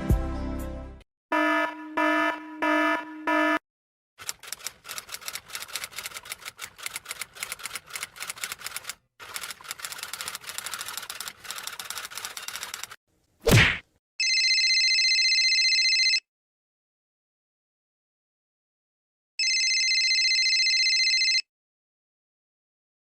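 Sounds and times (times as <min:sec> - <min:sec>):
typewriter key clacks: 0:04.2 - 0:13.0.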